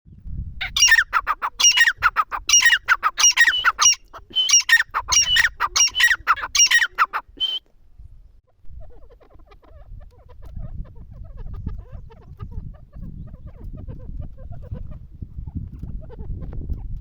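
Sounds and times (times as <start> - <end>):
francolin calling: 0.6 - 7.6.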